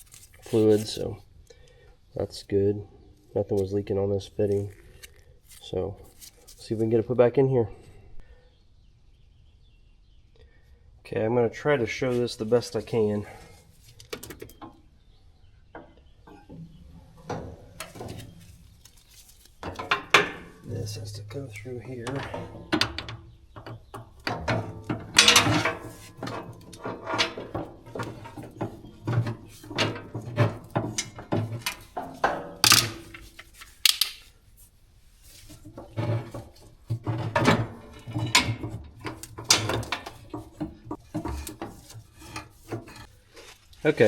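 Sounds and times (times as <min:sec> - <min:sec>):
hose scraping against metal: 0:00.0 - 0:01.1, 0:16.3 - 0:34.0, 0:35.2 - 0:44.0.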